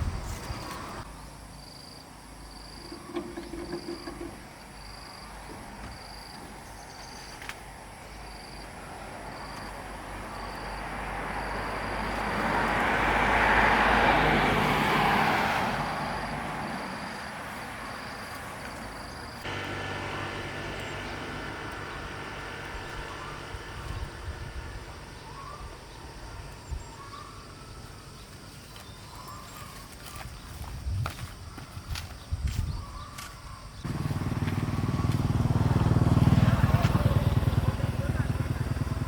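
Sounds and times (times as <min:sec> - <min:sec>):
vehicle passing by: 0:09.2 - 0:27.0, 0:33.8 - 0:39.0
low hum: 0:19.4 - 0:25.5.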